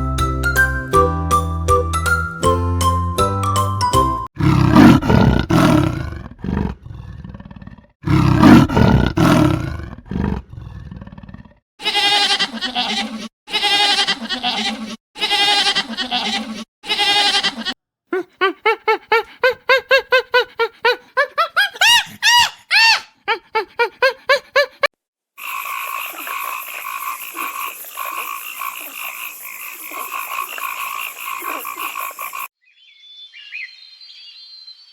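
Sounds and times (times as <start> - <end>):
animal roaring calls: 4.4 - 11.6.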